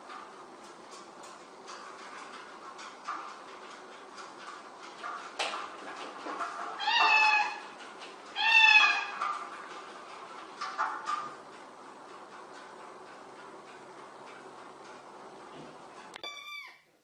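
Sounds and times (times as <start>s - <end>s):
cat meowing: 6.8s - 7.6s, 8.4s - 9.2s, 16.2s - 16.9s.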